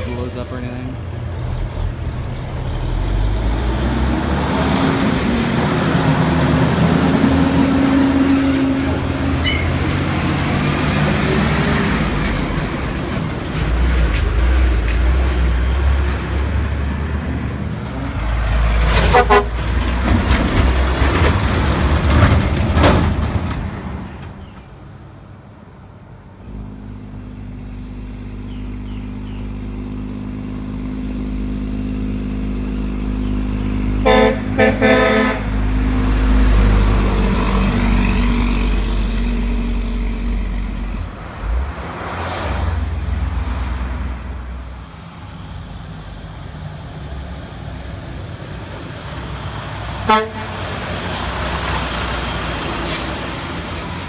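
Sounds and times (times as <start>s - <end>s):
truck engine running: 0.0s - 24.7s, 26.0s - 42.2s, 42.9s - 54.0s
trucks passing on wet street: 0.0s - 54.0s
air horn blasts: 19.0s - 19.6s, 34.0s - 35.7s, 50.0s - 50.8s.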